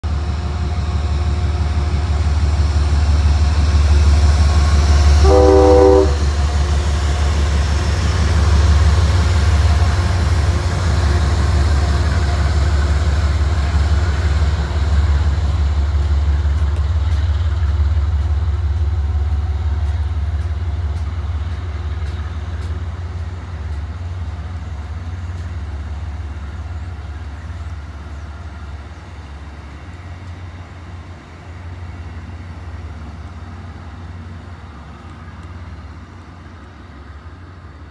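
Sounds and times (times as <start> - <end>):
train rumbling past: 0.0 - 37.9
train horn: 5.1 - 6.7.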